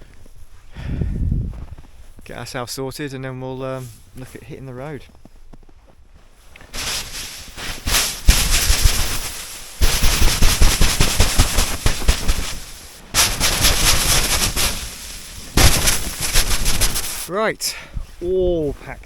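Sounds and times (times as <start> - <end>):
tent fabric rustling and crinkling: 5.0 - 17.3.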